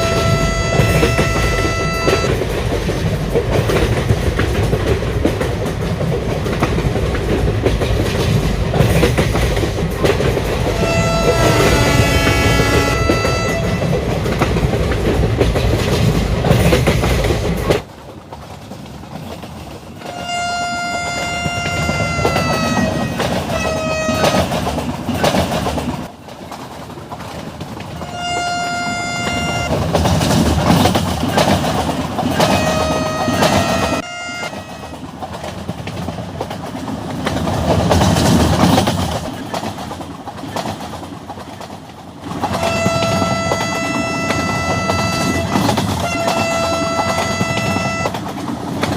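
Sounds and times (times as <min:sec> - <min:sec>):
train horn blasts: 0:00.0 - 0:02.3, 0:10.6 - 0:14.0, 0:20.0 - 0:24.5, 0:28.0 - 0:29.7, 0:32.4 - 0:35.1, 0:42.5 - 0:48.2
train wheels rumbling on rail: 0:00.0 - 0:48.9.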